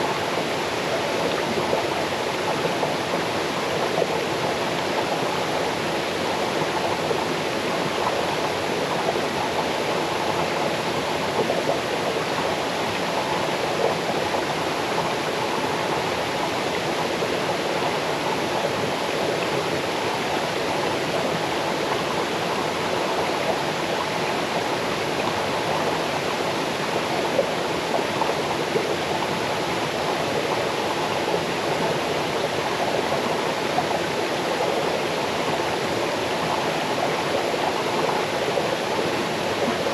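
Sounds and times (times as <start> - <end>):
waterfall rushing over stones: 0.0 - 39.9.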